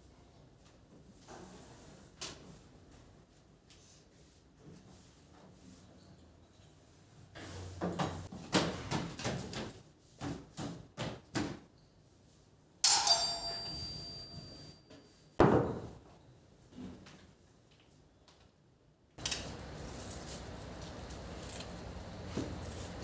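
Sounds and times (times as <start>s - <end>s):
metal object ringing: 12.8s - 14.8s.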